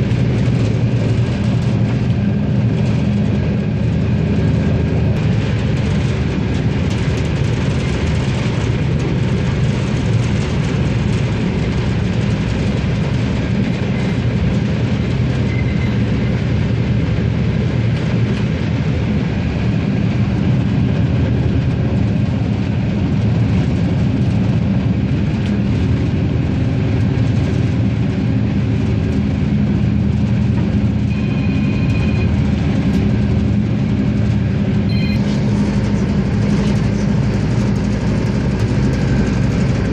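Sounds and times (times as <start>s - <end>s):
diesel railcar engine drone: 0.0s - 39.9s
wheels rolling on track: 0.0s - 39.9s
short thin high tone: 34.9s - 35.3s.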